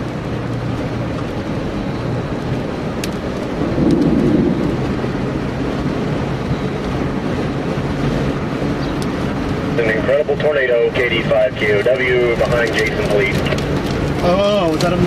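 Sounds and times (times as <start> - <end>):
vehicle running noise: 0.0 - 15.0
low thunder rumble: 0.4 - 8.8.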